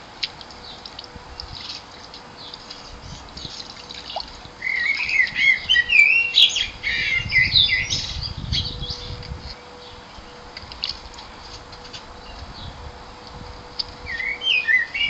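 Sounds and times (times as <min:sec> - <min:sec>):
splashing in bird bath: 0:00.0 - 0:07.0, 0:10.6 - 0:11.6
blackbird singing: 0:04.6 - 0:10.4, 0:14.0 - 0:15.0.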